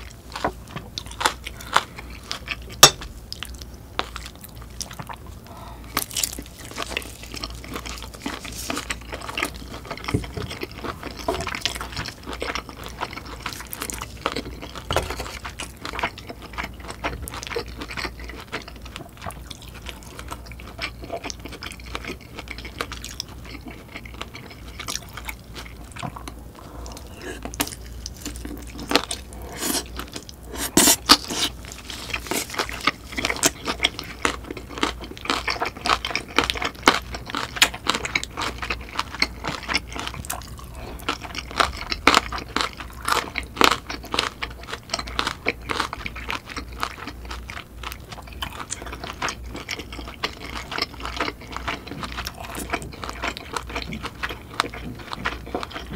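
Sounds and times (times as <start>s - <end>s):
chewing and biting food: 0.0s - 55.9s.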